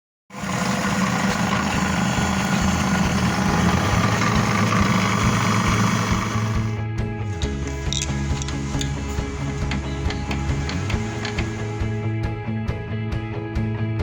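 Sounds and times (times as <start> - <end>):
juice machine motor humming: 0.3 - 6.8, 7.4 - 12.0.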